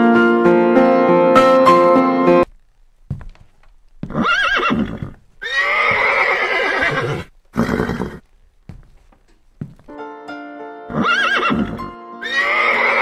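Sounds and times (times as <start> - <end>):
horse neighing: 4.1 - 8.2, 10.9 - 13.0.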